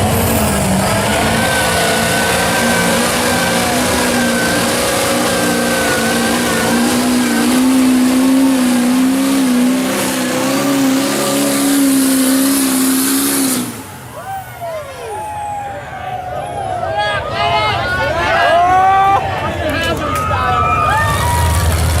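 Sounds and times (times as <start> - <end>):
off-road vehicle engine revving: 0.0 - 14.2, 21.2 - 22.0.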